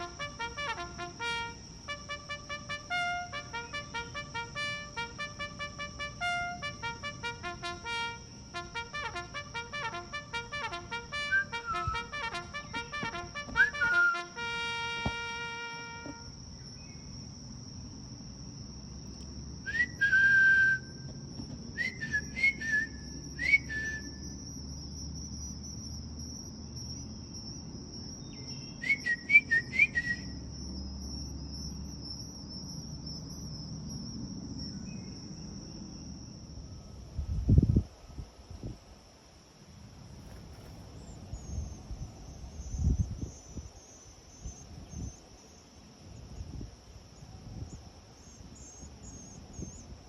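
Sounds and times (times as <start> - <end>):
high insect trill: 0.0 - 50.0
whistled bird calls: 11.1 - 17.0, 19.7 - 21.1, 21.8 - 24.2, 28.2 - 30.4
dull low thump: 15.0 - 15.3.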